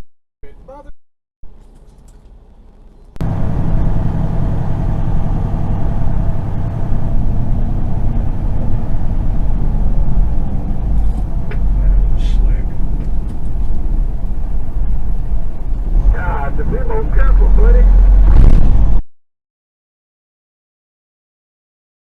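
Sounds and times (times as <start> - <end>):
vehicle engine and road noise: 1.4 - 19.0.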